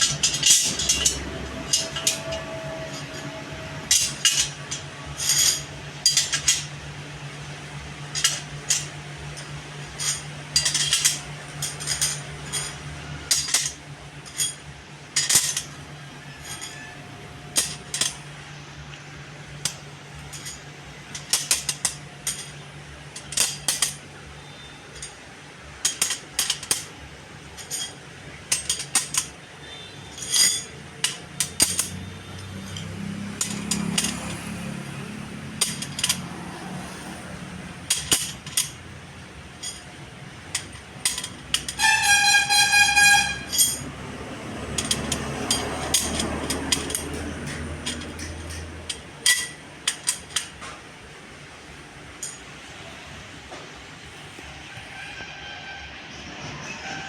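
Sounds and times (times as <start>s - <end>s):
steady low hum: 0.0s - 54.7s
metal clinks and taps: 27.6s - 34.6s, 35.5s - 36.3s, 44.7s - 50.8s.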